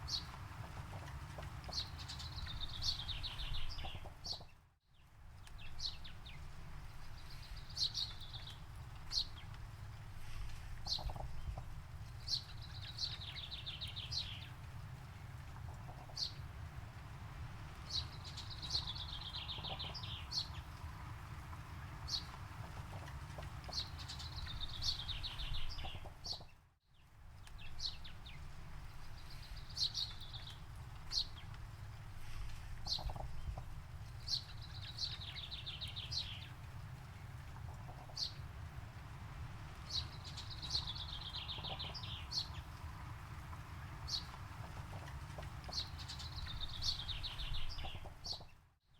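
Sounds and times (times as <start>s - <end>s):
songbird trilling and chirping: 17.9s - 20.6s, 32.8s - 33.6s, 39.9s - 42.6s, 45.1s - 48.5s.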